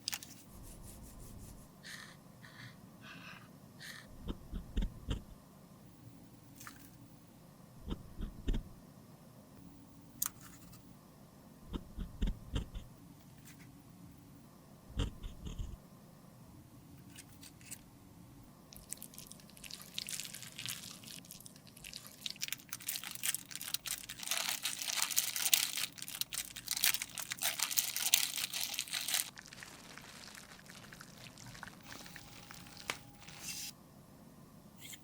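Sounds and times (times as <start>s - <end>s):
crunching and scraping: 19.6s - 33.7s.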